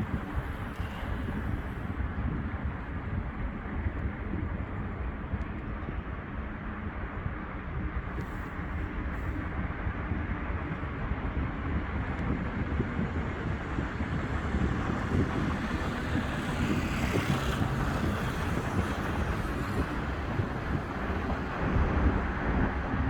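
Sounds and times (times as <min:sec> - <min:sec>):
wind on microphone: 0:00.0 - 0:23.0
passing cars traffic noise: 0:13.4 - 0:23.0.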